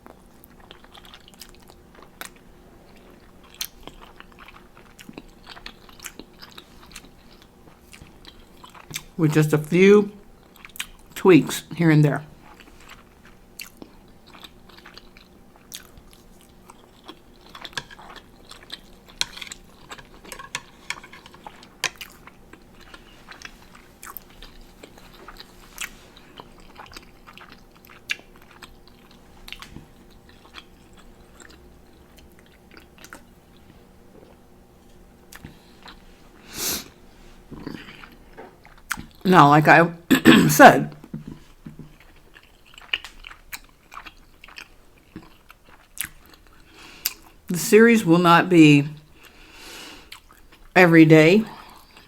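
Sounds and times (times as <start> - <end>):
person chewing noodles: 0.0 - 9.2, 10.2 - 11.2, 12.4 - 34.5, 35.2 - 39.2, 40.9 - 47.5, 49.0 - 50.7, 51.5 - 52.0.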